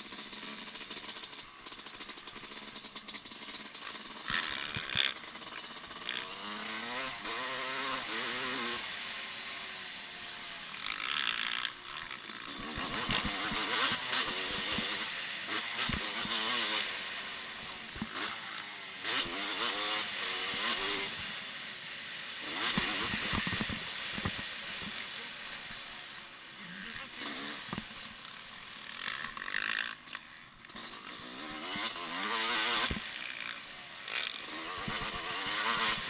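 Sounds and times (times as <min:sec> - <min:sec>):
motocross bike engines revving: 0:00.0 - 0:36.0.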